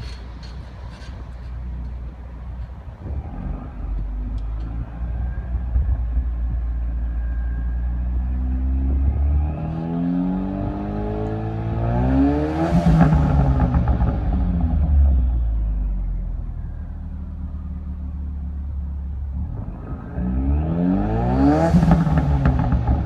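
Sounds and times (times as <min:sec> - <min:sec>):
car engine revving: 0:08.2 - 0:16.0, 0:19.1 - 0:23.0.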